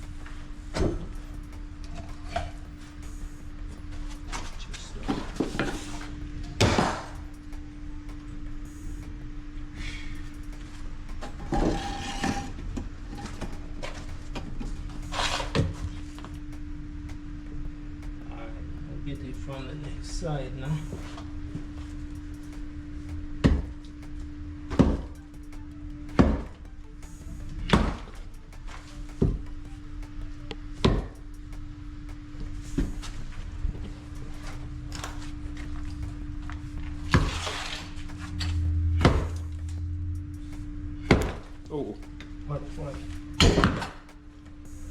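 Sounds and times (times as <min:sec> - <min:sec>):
steady low hum: 0:00.0 - 0:44.9
pipe knocking and scraping: 0:11.3 - 0:14.0.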